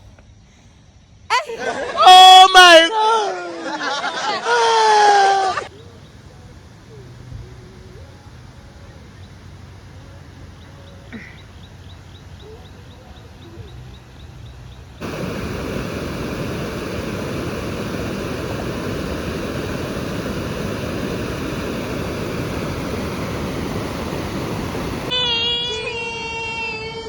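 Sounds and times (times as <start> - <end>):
waterfall rushing: 15.0 - 25.1.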